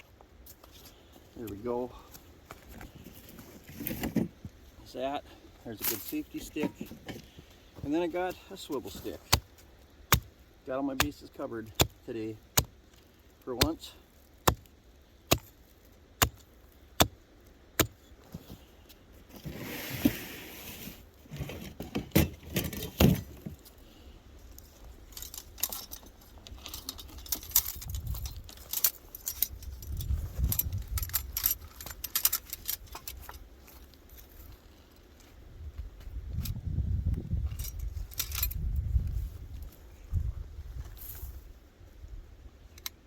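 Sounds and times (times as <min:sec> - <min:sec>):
metal gear clinking and jangling: 0:24.6 - 0:35.1, 0:37.4 - 0:38.8.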